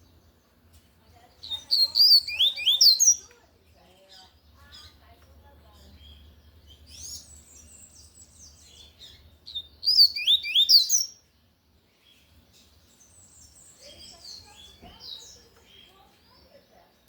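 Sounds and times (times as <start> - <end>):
bird singing: 0.0 - 17.0
whistled bird phrase: 1.4 - 3.2, 9.5 - 11.2.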